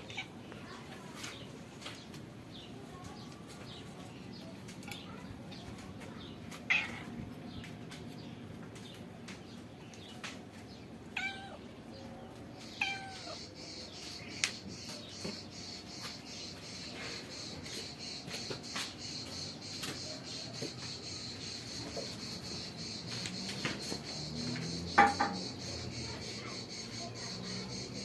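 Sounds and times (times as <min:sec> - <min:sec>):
cats meowing: 0:00.0 - 0:00.4, 0:06.7 - 0:07.2, 0:11.1 - 0:11.7, 0:12.7 - 0:13.5.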